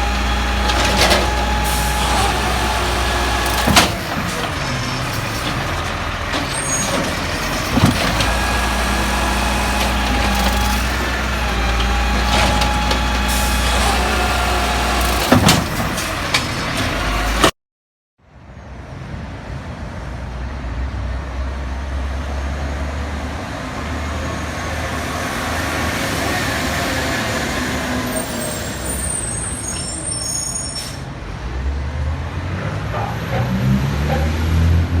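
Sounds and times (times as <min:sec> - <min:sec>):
garbage truck engine running: 0:00.0 - 0:17.5.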